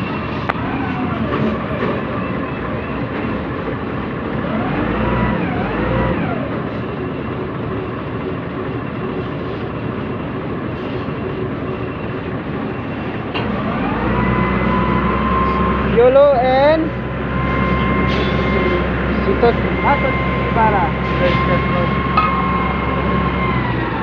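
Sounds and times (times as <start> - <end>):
heavy diesel engine revving: 0.0 - 7.6, 12.4 - 24.0.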